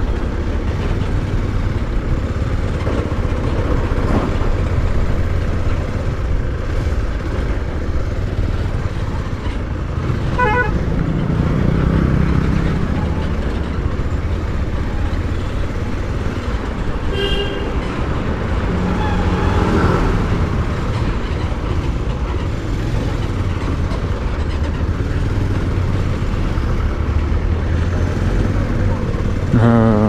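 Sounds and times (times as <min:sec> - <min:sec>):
motorcycle engine and road rumble: 0:00.0 - 0:30.0
vehicle horn toot: 0:10.4 - 0:10.8, 0:17.1 - 0:17.8.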